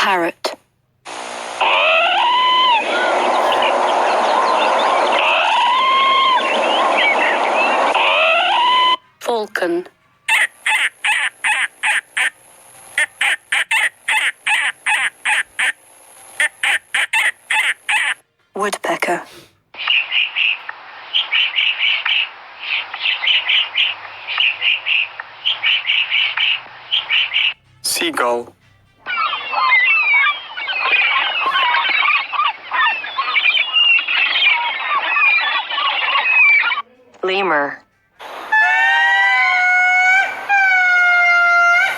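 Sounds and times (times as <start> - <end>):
falcon kek calls: 10.3 - 12.4, 13.0 - 15.8, 16.4 - 18.2, 21.2 - 27.6, 29.1 - 36.8.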